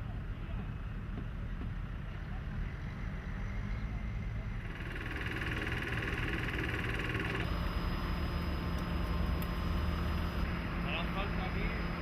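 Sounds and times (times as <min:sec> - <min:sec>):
engine rumbling: 0:00.0 - 0:12.0
high-pitched mechanical rattle: 0:04.6 - 0:12.0.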